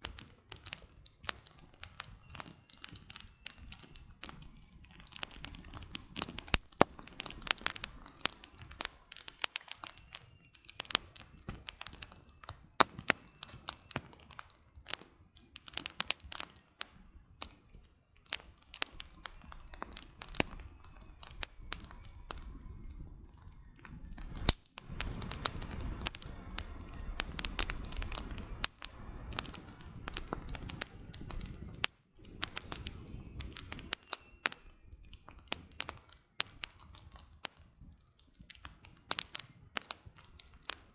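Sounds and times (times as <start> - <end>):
campfire crackling and popping: 0.0 - 40.9
low rumble: 21.4 - 33.4.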